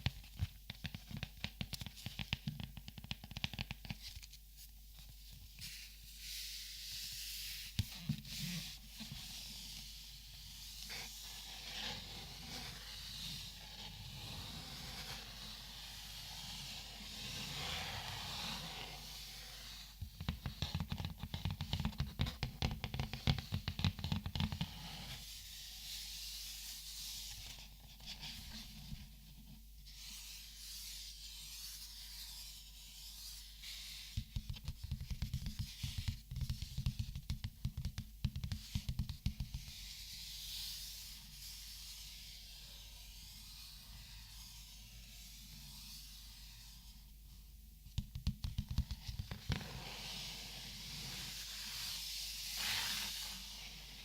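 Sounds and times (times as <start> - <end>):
soft rustling of markers: 0.0 - 41.6.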